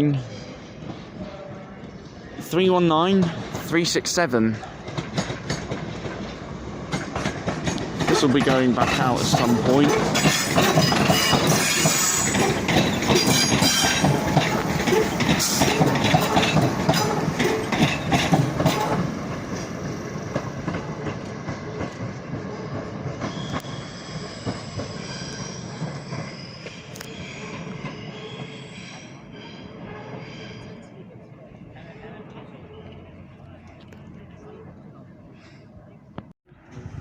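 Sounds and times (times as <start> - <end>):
train wheels clattering over joints: 4.4 - 28.8
wheels squealing: 9.5 - 19.8, 20.7 - 31.0.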